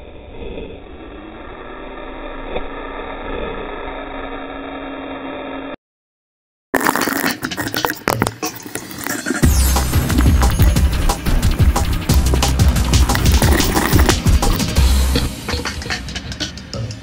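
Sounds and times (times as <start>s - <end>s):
mechanical hum: 0.0s - 5.8s
music: 9.2s - 17.0s.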